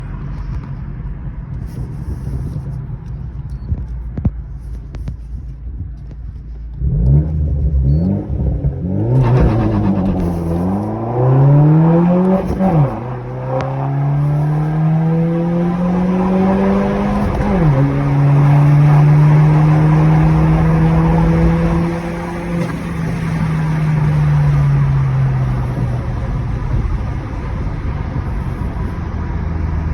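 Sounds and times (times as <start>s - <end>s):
car engine revving and accelerating: 6.7s - 29.9s.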